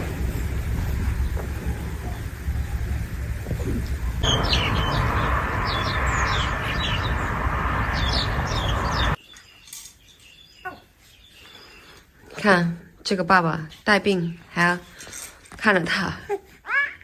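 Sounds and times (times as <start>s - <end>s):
low rumble: 0.0s - 9.2s
steady hiss: 0.0s - 9.2s
birds chirping: 1.0s - 12.2s.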